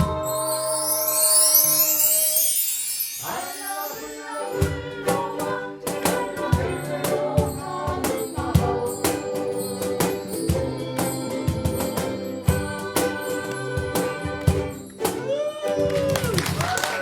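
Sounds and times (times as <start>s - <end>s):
chime run shimmer: 0.0s - 5.0s
strummed ukuleles: 3.3s - 17.0s.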